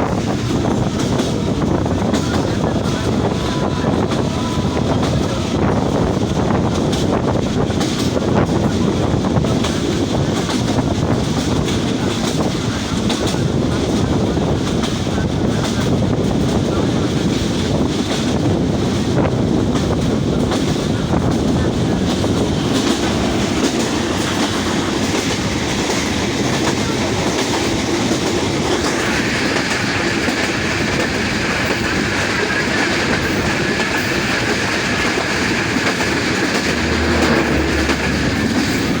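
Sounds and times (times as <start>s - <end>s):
train wheels clattering: 0.0s - 39.0s.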